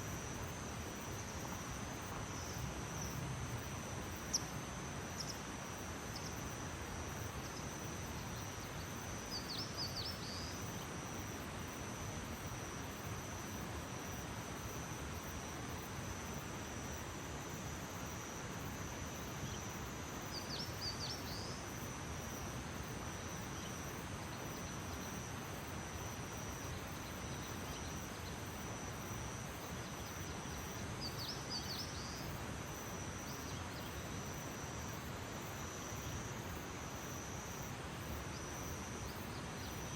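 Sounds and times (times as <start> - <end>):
background hiss: 0.0 - 39.9
insect chorus trilling: 0.0 - 39.9.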